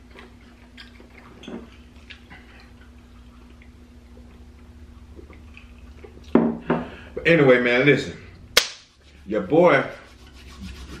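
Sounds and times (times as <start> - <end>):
person chewing food: 0.0 - 6.4
faint steady hum: 0.0 - 11.0.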